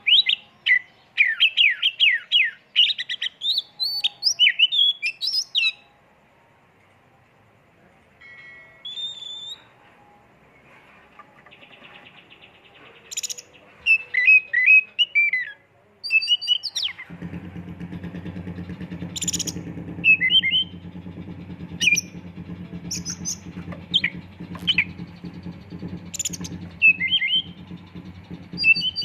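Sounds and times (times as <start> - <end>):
magpie-robin singing: 0.0 - 5.9, 8.8 - 9.8, 11.4 - 17.0, 19.1 - 20.9, 21.7 - 29.0
low motor hum: 17.0 - 29.0.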